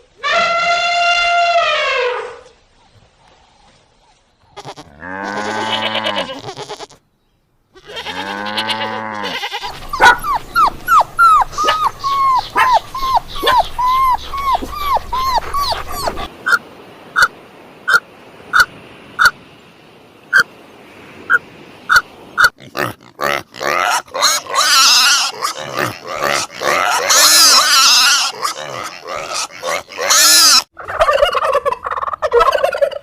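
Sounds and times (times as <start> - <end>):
animal calls: 7.9 - 16.6.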